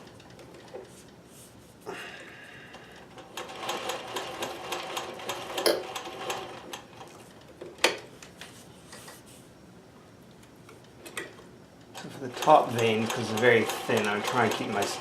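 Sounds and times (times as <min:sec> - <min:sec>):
sewing machine stitching: 0:03.2 - 0:07.1, 0:12.0 - 0:15.0.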